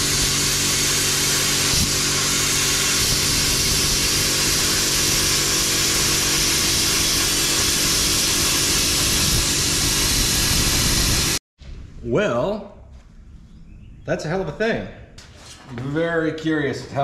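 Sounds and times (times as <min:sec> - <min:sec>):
plasma cutter hissing: 0:00.0 - 0:11.4.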